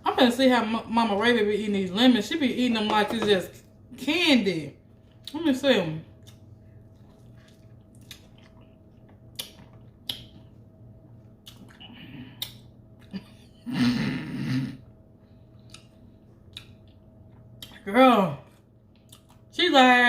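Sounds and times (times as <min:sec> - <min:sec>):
wet mouth smacks: 0:07.4 - 0:10.4, 0:11.4 - 0:12.7
chewing clicks: 0:19.0 - 0:19.4.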